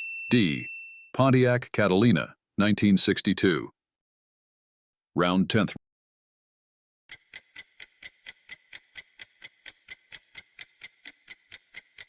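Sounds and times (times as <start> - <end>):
clock ticking: 7.1 - 12.0.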